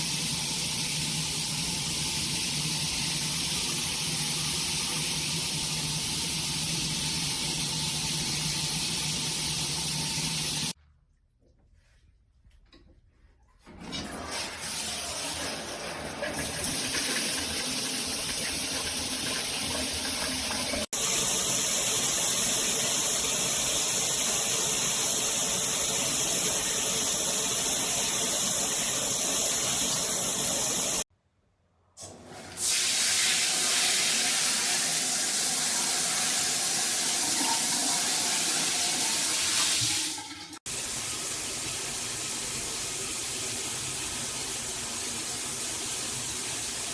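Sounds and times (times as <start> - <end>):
water spraying from shower head: 14.4 - 31.1, 40.6 - 46.9.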